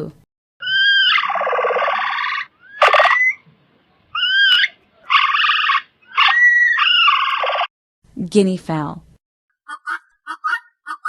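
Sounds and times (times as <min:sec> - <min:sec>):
coypu harsh buzzy cries: 0:00.6 - 0:03.4, 0:04.1 - 0:07.6.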